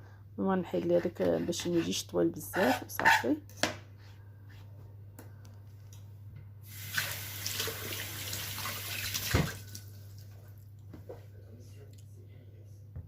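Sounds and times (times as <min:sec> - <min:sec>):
kitchen tap running: 0:06.6 - 0:10.3
steady low hum: 0:09.8 - 0:13.0.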